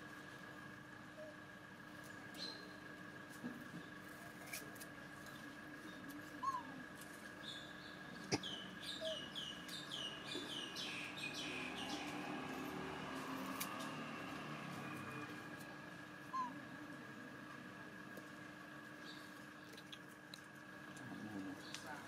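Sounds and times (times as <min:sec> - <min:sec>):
bird chirping: 0:07.4 - 0:13.1.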